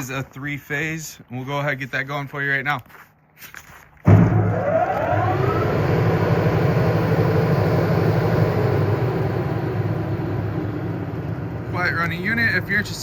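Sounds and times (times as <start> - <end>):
blower hum and air rush: 4.1 - 13.0
blower whine: 4.1 - 13.0.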